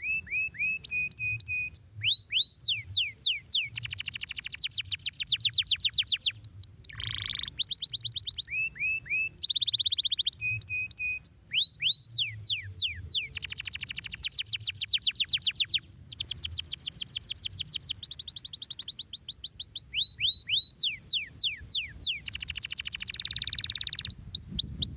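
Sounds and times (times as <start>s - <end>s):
canary singing: 0.0s - 24.9s.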